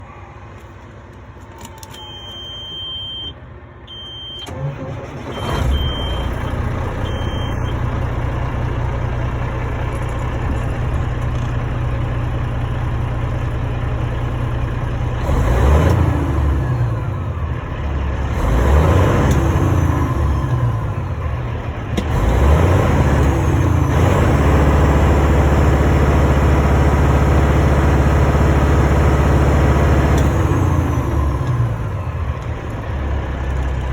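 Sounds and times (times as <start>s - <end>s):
diesel engine starting and idling: 0.0s - 33.9s
short beeps: 1.7s - 4.5s, 5.3s - 7.8s
engine revving: 15.1s - 33.9s.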